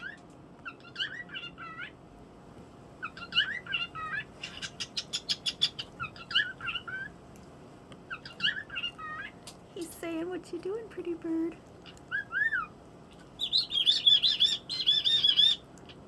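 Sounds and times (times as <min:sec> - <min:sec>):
bird whistling: 0:03.0 - 0:07.1, 0:12.1 - 0:12.7, 0:13.4 - 0:15.6.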